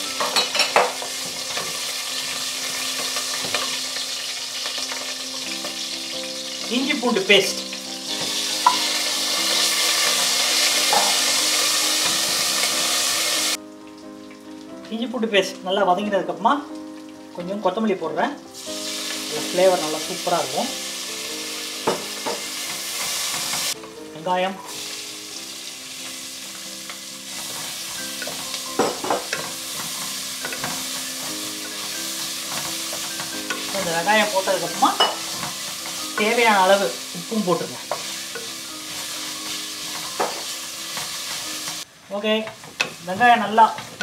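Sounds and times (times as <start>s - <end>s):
paste sizzling in hot oil: 0.0s - 14.8s, 18.4s - 23.8s, 24.7s - 44.0s
wooden spatula stirring in pan: 26.9s - 41.9s.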